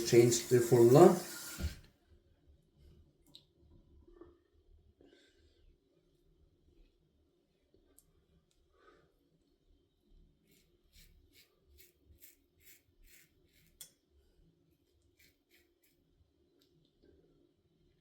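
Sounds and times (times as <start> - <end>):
safety razor cutting stubble: 10.5 - 13.9.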